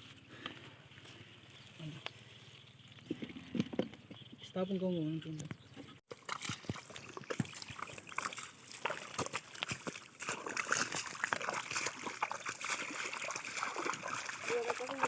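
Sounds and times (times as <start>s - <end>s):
river water sloshing and splashing: 6.1s - 15.0s.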